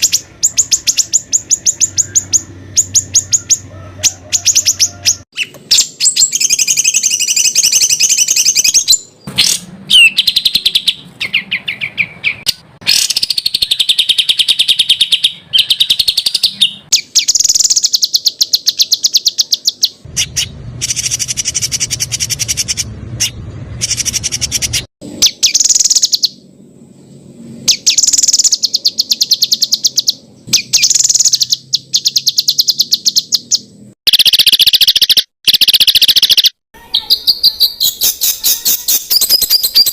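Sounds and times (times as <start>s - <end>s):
songbird singing high notes: 0.0s - 26.4s, 27.0s - 39.9s.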